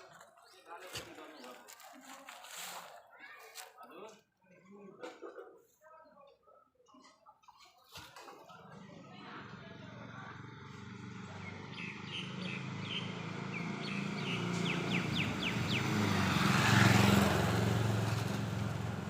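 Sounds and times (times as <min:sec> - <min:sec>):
vehicle passing: 0:09.1 - 0:19.0
bird chirping: 0:11.4 - 0:16.8.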